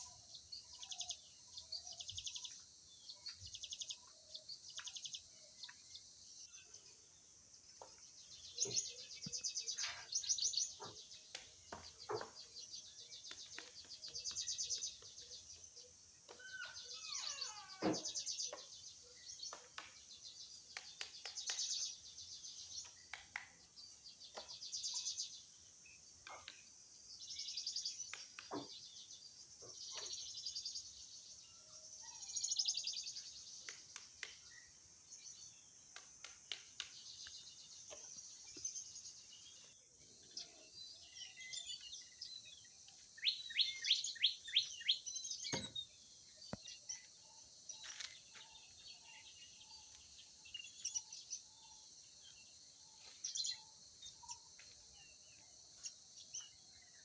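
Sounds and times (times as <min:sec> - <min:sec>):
sharp bird chirps: 0:07.8 - 0:57.0
birds buzzy trills: 0:08.5 - 0:20.0.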